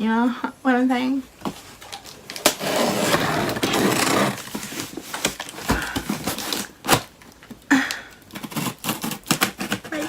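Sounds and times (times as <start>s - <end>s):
cardboard box rustling and scraping: 2.4s - 7.1s.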